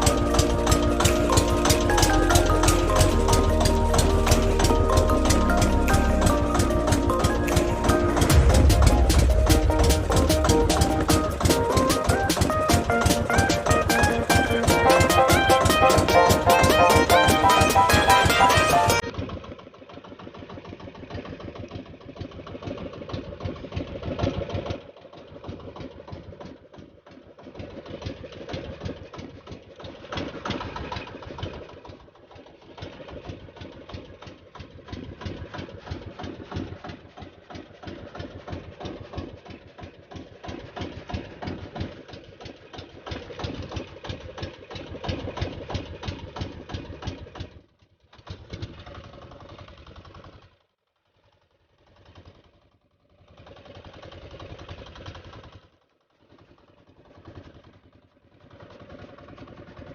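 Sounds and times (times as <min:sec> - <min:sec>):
small engine chugging: 0:00.0 - 0:59.9.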